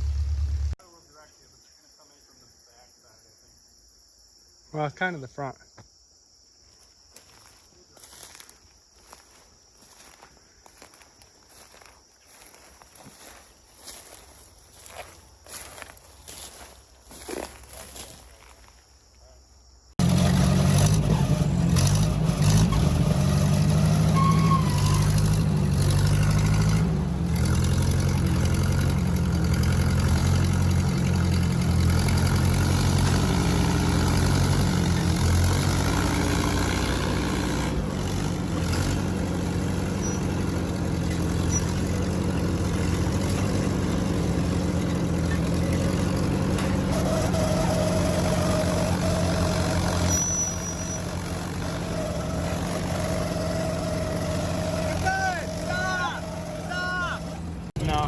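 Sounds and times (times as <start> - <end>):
tractor engine running hard: 20.0 - 58.0.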